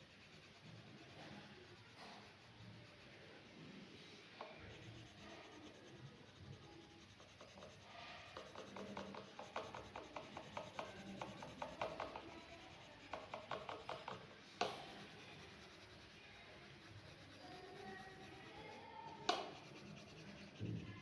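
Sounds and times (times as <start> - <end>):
drawing tip scratching paper: 4.6 - 21.0.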